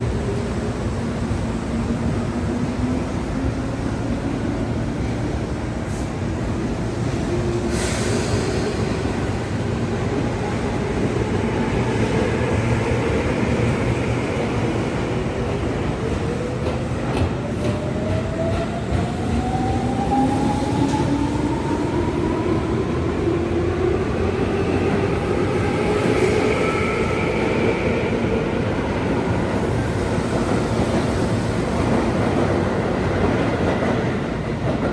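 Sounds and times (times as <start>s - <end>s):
train wheel rumble and clatter: 4.6s - 23.0s.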